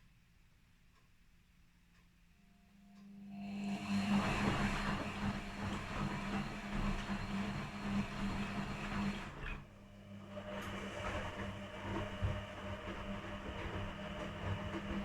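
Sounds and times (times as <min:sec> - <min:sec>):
washing machine motor hum: 0:03.0 - 0:15.0.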